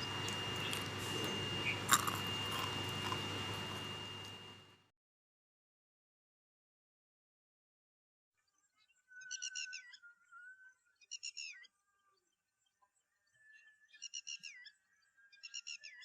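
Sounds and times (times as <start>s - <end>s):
faint steady high tone: 0.0s - 4.7s.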